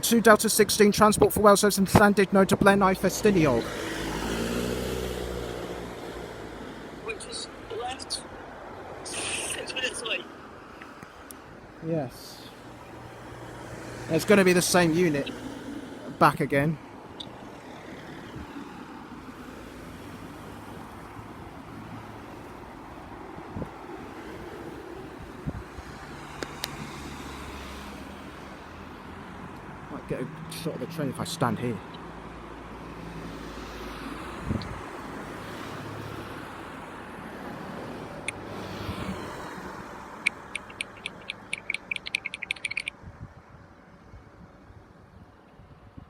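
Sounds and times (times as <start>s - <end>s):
road traffic hum: 0.0s - 46.0s
wind on microphone: 25.2s - 25.8s, 34.4s - 34.8s.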